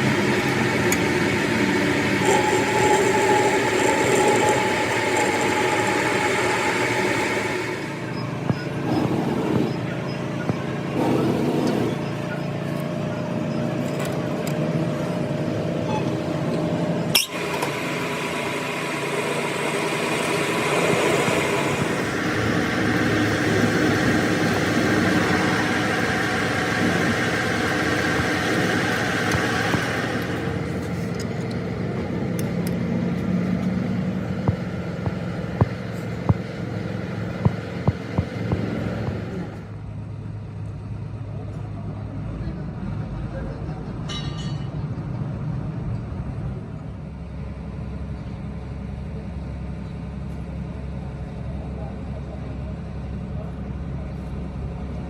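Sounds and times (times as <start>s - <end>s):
metal lathe humming and whining: 0.0s - 10.1s, 15.2s - 39.8s.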